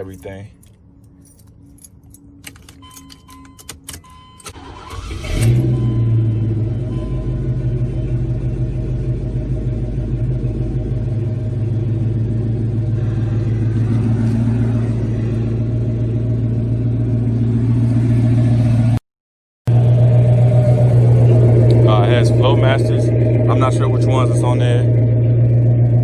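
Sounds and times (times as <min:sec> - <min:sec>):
car engine idling deep rumble: 0:05.6 - 0:19.0, 0:19.7 - 0:26.0.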